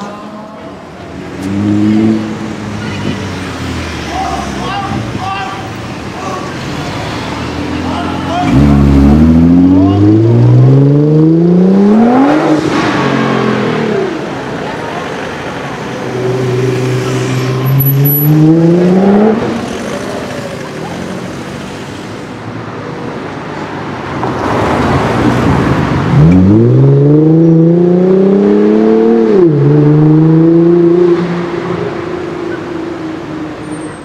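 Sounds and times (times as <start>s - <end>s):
sports car engine accelerating: 1.2s - 2.6s, 8.4s - 14.5s, 16.1s - 21.4s, 26.0s - 33.1s.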